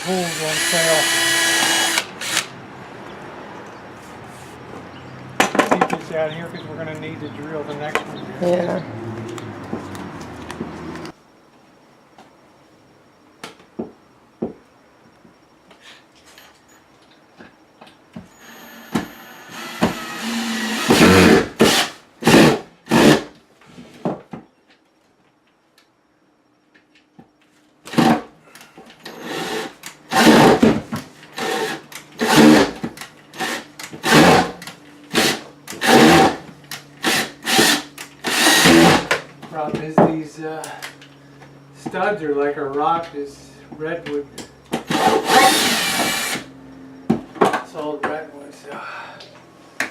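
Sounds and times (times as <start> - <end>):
power drill in short bursts: 0.0 - 2.5, 18.3 - 23.3, 29.0 - 30.6, 31.3 - 32.8, 33.4 - 36.4, 37.0 - 39.1, 44.9 - 46.5.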